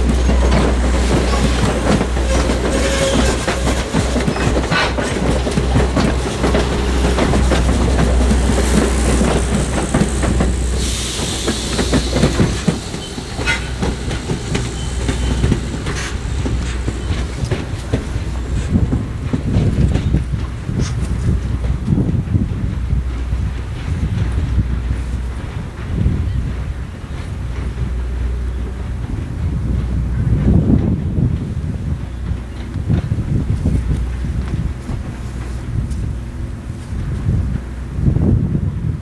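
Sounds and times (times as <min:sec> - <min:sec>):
clicking over rail joints: 0:00.0 - 0:37.9
train wheels rumbling on track: 0:00.0 - 0:39.0
burst of hiss: 0:10.2 - 0:18.5.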